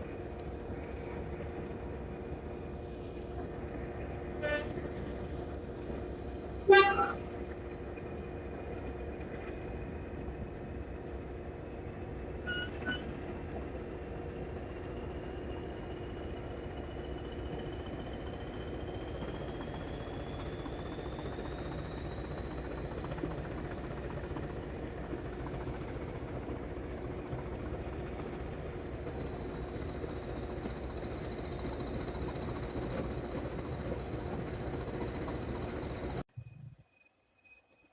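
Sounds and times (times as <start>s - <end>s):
diesel train running hum: 0.0s - 36.3s
train horn toots: 4.4s - 4.9s, 6.7s - 7.3s, 12.4s - 13.0s.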